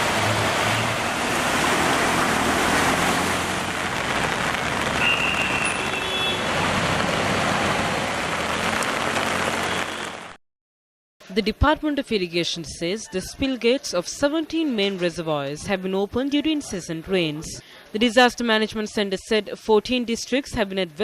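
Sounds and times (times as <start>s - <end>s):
vehicle engines: 0.0s - 10.3s
heavy rain: 0.0s - 10.4s.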